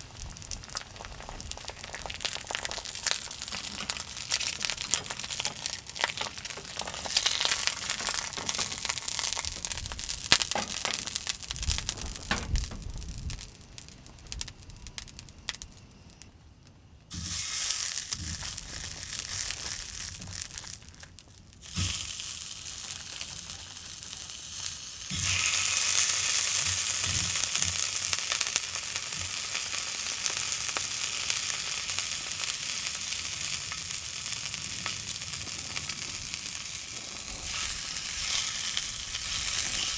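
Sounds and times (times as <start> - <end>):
food sizzling in a hot pan: 0.0 - 15.3, 17.1 - 39.9
crinkling and handling noises: 0.0 - 16.3, 17.8 - 25.5.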